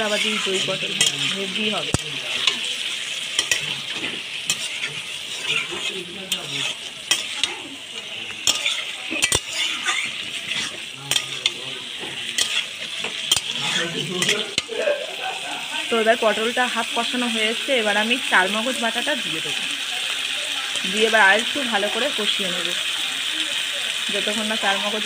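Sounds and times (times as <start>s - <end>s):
spatula scraping a metal pan: 0.0s - 14.8s
vegetables sizzling in oil: 0.0s - 25.0s.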